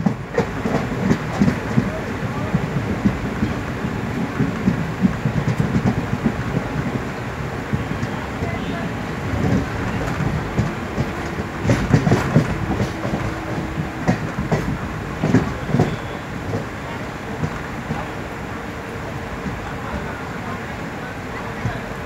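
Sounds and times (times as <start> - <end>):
train wheels rumbling on rails: 0.0 - 22.0
clattering over rail joints: 9.3 - 18.1.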